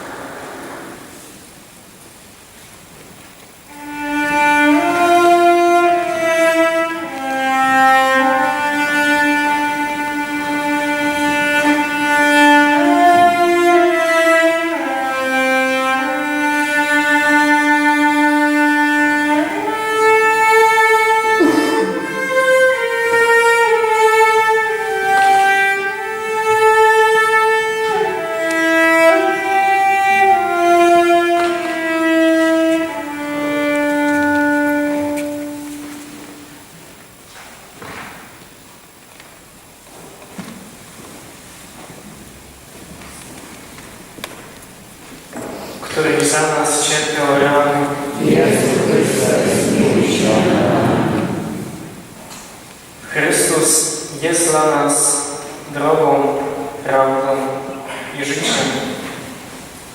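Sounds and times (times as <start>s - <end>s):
slow bowed string music: 3.7s - 36.6s, 46.0s - 52.2s.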